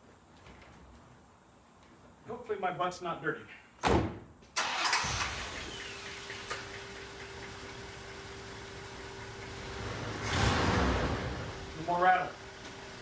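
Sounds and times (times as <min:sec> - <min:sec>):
car engine starting and idling: 0:04.6 - 0:13.0.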